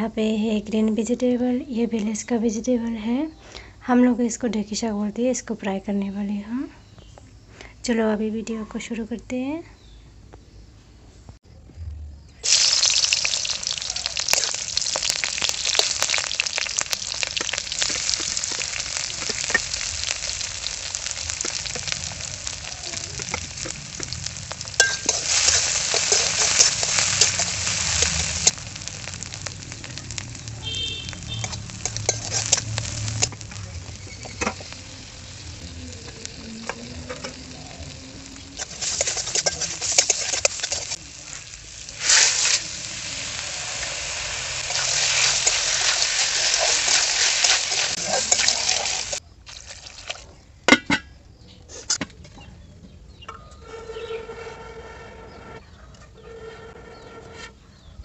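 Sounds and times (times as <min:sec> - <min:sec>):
onion and potato sizzling in oil: 0:12.4 - 0:50.3
metal spatula scraping pan: 0:21.0 - 0:29.3, 0:31.2 - 0:34.8, 0:38.3 - 0:41.0, 0:53.6 - 0:55.6, 0:56.2 - 0:57.8.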